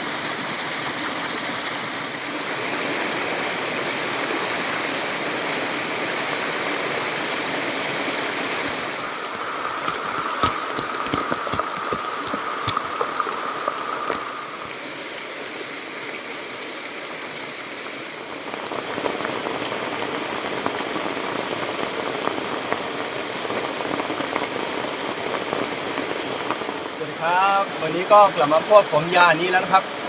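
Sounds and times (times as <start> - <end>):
fast-flowing stream rushing: 0.0 - 15.6, 23.1 - 30.0
ticks and splashes: 9.8 - 14.3.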